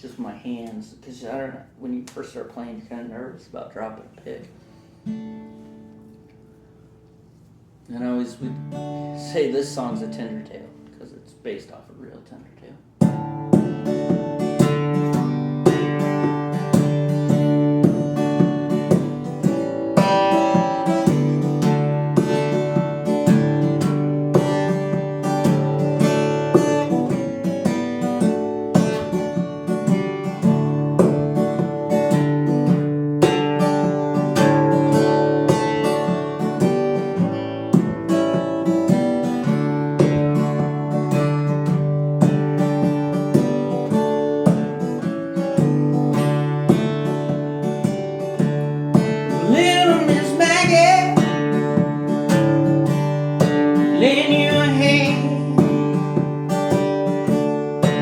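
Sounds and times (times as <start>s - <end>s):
fingerpicked acoustic guitar: 0.0s - 58.0s
person singing: 49.4s - 51.3s, 53.9s - 56.3s.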